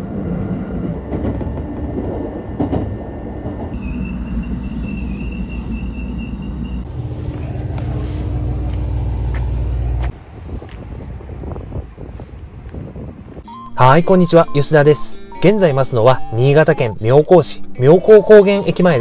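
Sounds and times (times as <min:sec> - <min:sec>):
train rumble from inside: 0:00.0 - 0:13.4.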